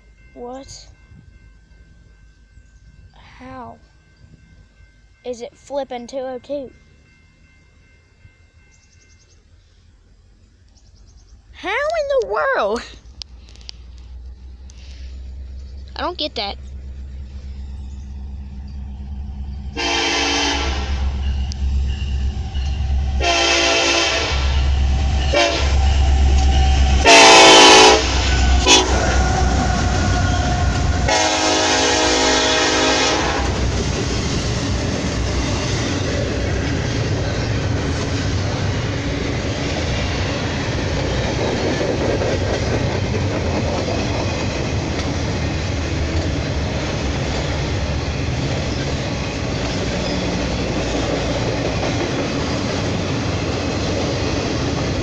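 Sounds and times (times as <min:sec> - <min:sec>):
freight cars rumbling on rails: 0:10.1 - 0:55.0
locomotive horn blasts: 0:19.8 - 0:21.3, 0:23.2 - 0:26.0, 0:27.0 - 0:33.7.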